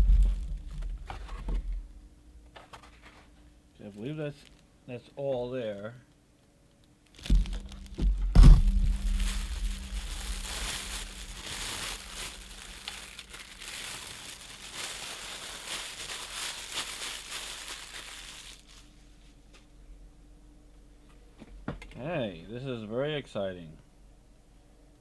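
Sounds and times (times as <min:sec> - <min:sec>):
packaging crinkling and rustling: 0:00.0 - 0:02.0, 0:07.1 - 0:19.0.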